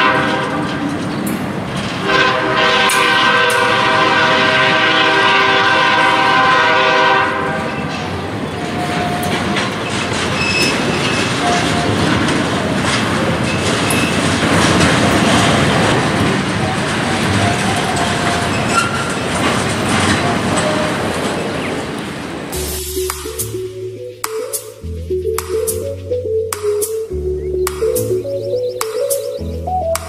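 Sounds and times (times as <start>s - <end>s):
locomotive air horn: 0.0s - 0.9s, 2.0s - 7.9s
wheels clacking over rail joints: 0.0s - 23.7s
train rumbling: 0.0s - 30.0s.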